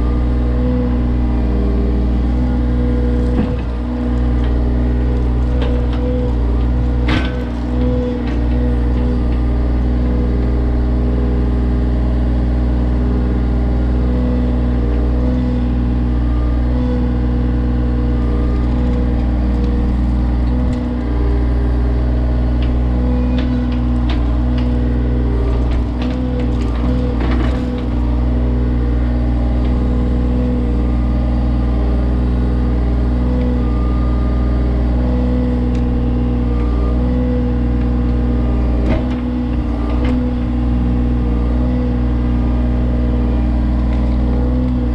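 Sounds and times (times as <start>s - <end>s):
excavator diesel engine running: 0.0s - 44.9s
knocks and scrapes: 22.6s - 28.1s.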